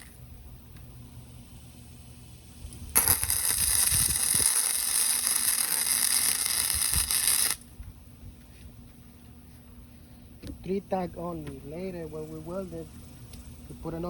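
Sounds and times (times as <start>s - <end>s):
welding arc crackling: 0.0s - 7.7s.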